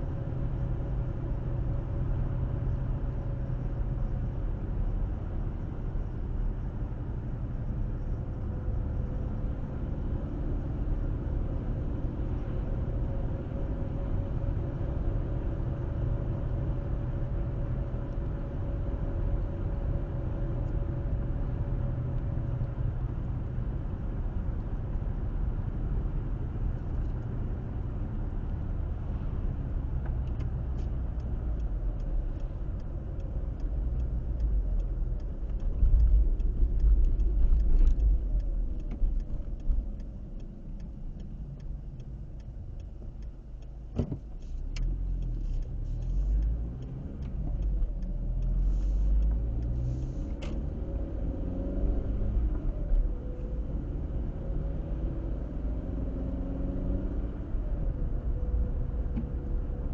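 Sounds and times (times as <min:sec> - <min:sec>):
car tyres and engine rumble: 0:00.0 - 0:59.9.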